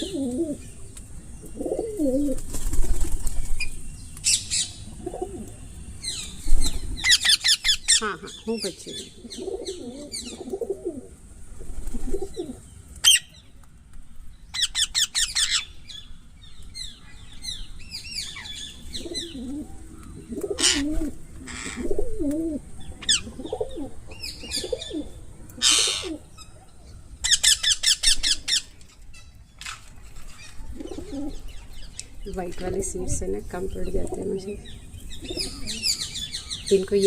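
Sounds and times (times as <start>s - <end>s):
low cooing calls: 0.0s - 3.0s, 4.3s - 13.4s, 18.2s - 28.7s, 30.5s - 31.9s, 33.6s - 37.0s
parrots chirping: 7.0s - 10.4s, 25.6s - 26.6s, 27.2s - 28.8s
parrot squawks: 25.6s - 26.2s.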